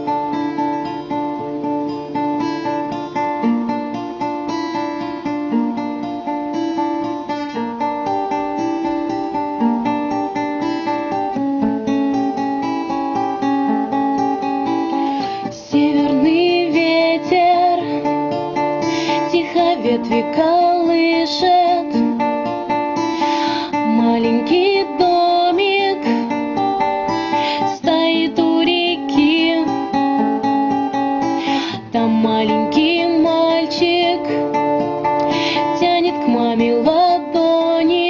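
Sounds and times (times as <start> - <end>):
fingerpicked acoustic guitar: 0.0 - 38.0
person singing: 15.2 - 18.2, 18.8 - 22.2, 23.2 - 26.3, 27.2 - 30.0, 31.3 - 34.5, 35.1 - 38.0.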